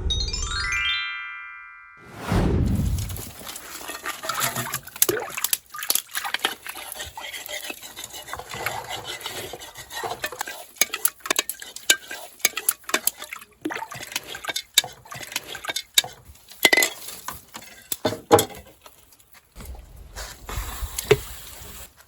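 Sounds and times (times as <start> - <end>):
utensils clinking against dishes: 3.4 - 19.0.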